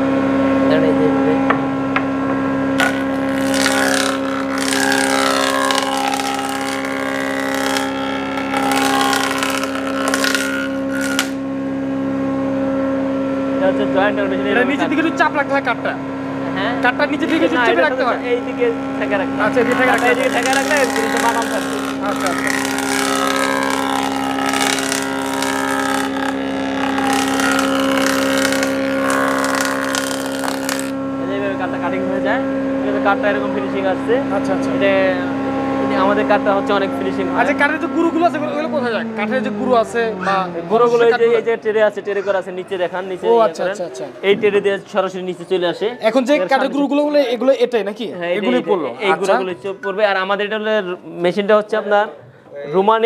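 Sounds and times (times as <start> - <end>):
motor hum: 0.0 - 46.3
jointer cutting wood: 1.4 - 11.6, 17.2 - 32.1.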